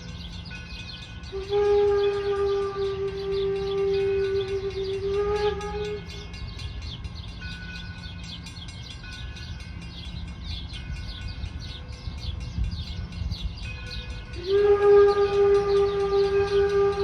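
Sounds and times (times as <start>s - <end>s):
steam locomotive rumble: 0.0s - 17.0s
steam whistle: 1.3s - 6.4s, 14.3s - 17.0s.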